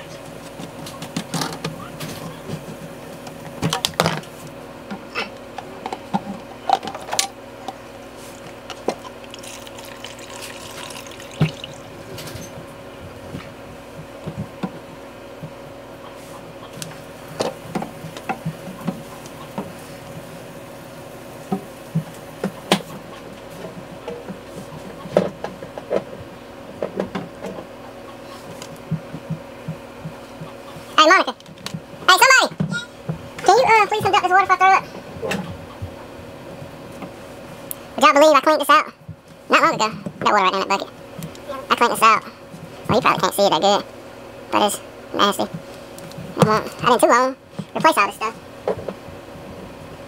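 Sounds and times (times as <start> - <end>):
steady hum: 0.0 - 50.0
water trickling into bucket: 9.0 - 12.0.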